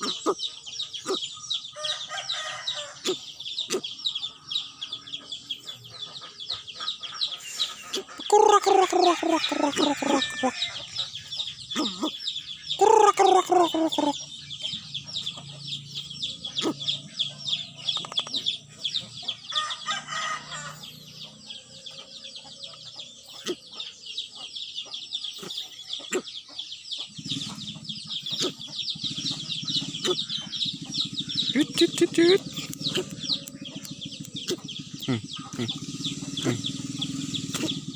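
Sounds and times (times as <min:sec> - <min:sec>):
rapid high-pitched chirping: 0:00.0 - 0:37.9
rooster crowing: 0:01.8 - 0:03.1, 0:08.5 - 0:11.0, 0:19.5 - 0:22.5.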